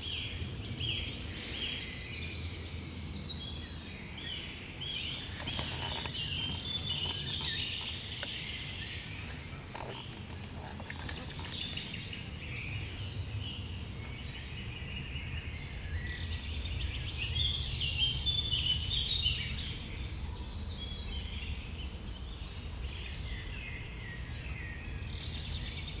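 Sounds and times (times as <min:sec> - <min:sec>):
songbirds singing: 0:00.0 - 0:26.0.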